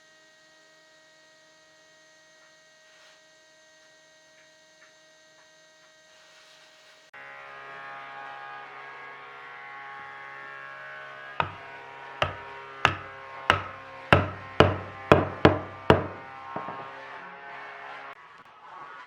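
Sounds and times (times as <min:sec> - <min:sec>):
steady hum: 0:11.4 - 0:16.9
hammer blows on wood: 0:11.4 - 0:17.0.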